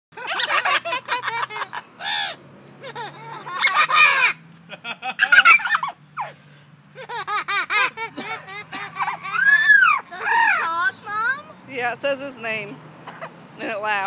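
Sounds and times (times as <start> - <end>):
parrot imitating laughter: 0.2 - 6.3, 6.9 - 10.7.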